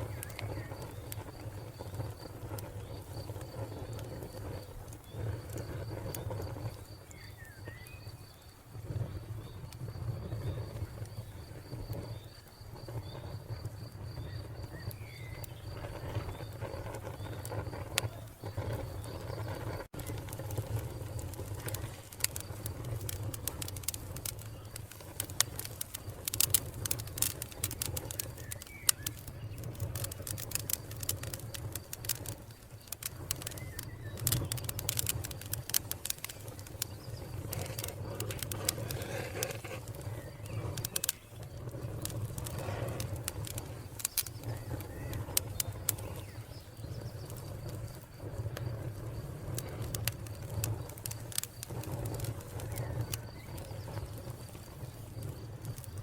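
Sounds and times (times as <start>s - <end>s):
cricket chirping: 0.0s - 56.0s
wood fire crackling and popping: 0.0s - 56.0s.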